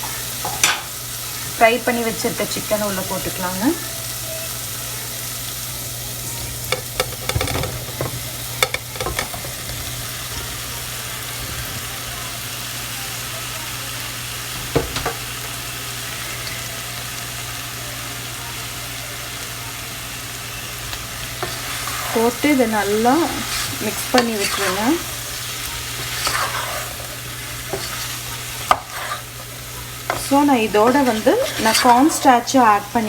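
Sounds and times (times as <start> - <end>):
sauce sizzling in a frying pan: 0.0 - 33.0
utensil knocking against pan: 6.7 - 9.5.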